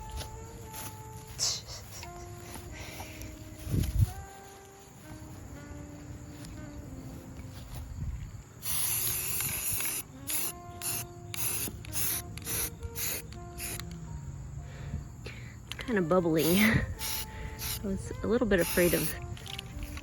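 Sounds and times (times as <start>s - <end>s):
spray paint can spraying: 8.6s - 14.0s, 16.4s - 20.0s.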